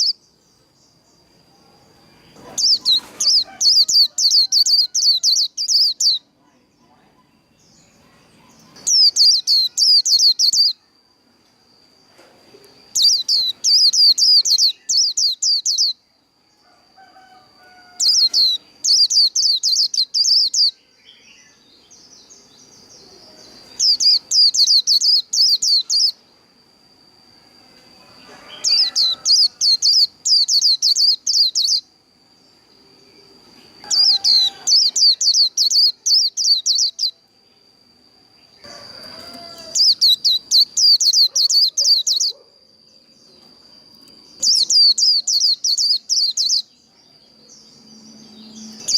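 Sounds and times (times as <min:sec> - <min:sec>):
bird singing high trilling notes: 0:00.0 - 0:00.2, 0:02.3 - 0:06.3, 0:08.6 - 0:10.8, 0:12.8 - 0:16.1, 0:18.0 - 0:26.2, 0:28.4 - 0:31.9, 0:33.8 - 0:37.2, 0:38.9 - 0:42.5, 0:44.0 - 0:48.9.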